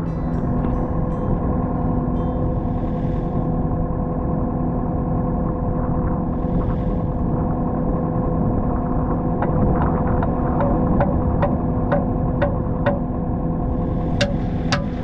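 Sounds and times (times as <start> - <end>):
sharp knocks: 9.4 - 13.1, 14.2 - 15.0.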